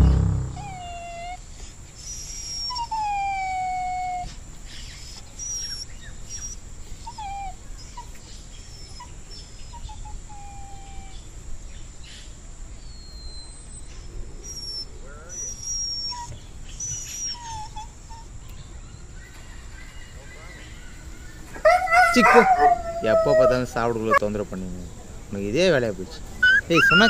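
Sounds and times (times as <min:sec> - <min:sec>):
puppy whining: 0:00.0 - 0:04.4, 0:05.0 - 0:11.3, 0:14.4 - 0:18.6, 0:21.5 - 0:24.4, 0:26.4 - 0:27.0.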